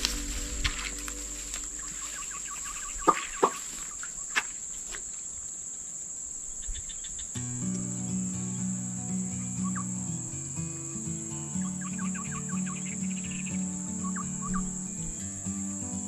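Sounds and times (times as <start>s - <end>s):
background music with low notes: 0.0s - 3.0s, 7.4s - 16.0s
insect chirps: 0.0s - 16.0s
insects whining: 0.0s - 16.0s.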